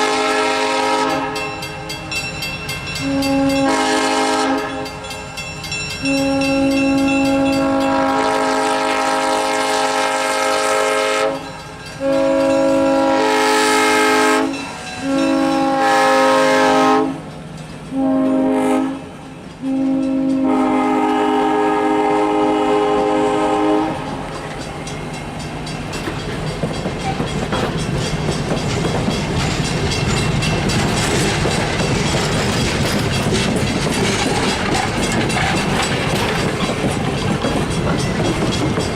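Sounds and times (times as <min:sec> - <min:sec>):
locomotive horn blasts: 0:00.0 - 0:01.9, 0:03.0 - 0:05.0, 0:06.0 - 0:17.3, 0:17.9 - 0:24.2
train wheels clattering over rails: 0:10.4 - 0:21.6, 0:23.8 - 0:38.9.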